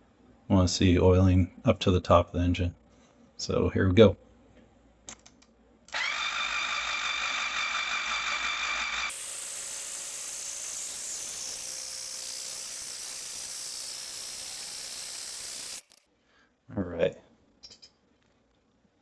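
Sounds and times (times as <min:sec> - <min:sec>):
starter motor cranking engine: 0:07.6 - 0:16.0.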